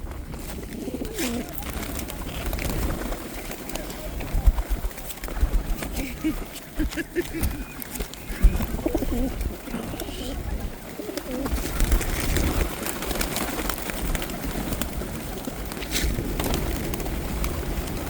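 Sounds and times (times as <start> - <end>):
pigeons cooing: 0.0 - 4.2, 5.4 - 18.0.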